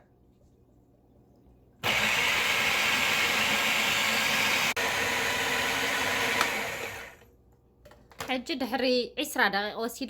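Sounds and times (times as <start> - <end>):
electric kitchen machine churning: 1.8 - 7.3.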